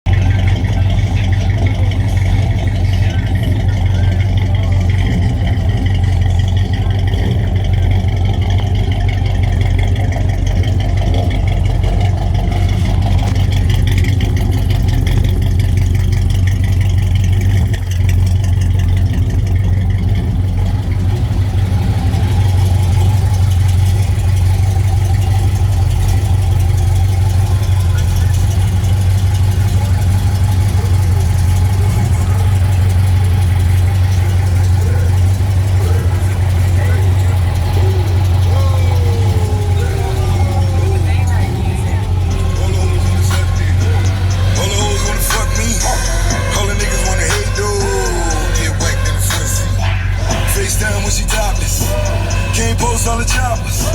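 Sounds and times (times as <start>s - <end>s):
car engine idling: 0.0s - 53.9s.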